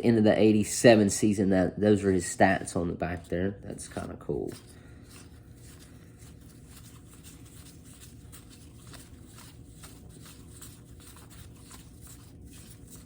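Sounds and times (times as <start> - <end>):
low room hum: 0.0 - 13.0
cardboard cards rustling: 3.2 - 13.0.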